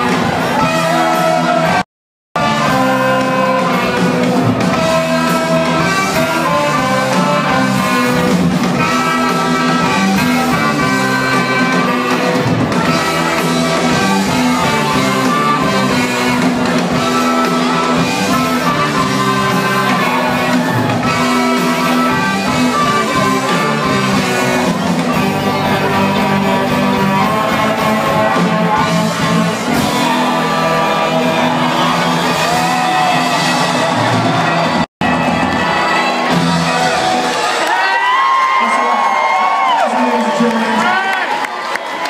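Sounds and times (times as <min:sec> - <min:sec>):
live blues-rock band playing: 0:00.0 - 0:01.8, 0:02.4 - 0:37.8.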